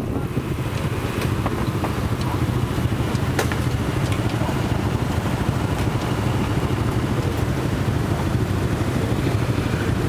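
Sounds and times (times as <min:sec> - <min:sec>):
wind rushing over microphone: 0:00.0 - 0:10.0.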